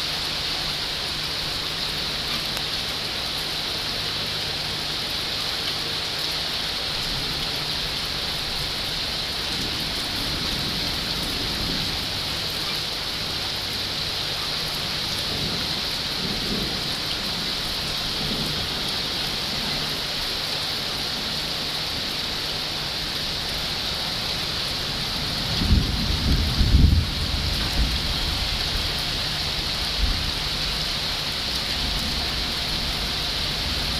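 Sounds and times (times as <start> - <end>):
heavy rain falling: 0.0 - 33.9
thunder rumble: 15.2 - 19.9, 24.7 - 33.9.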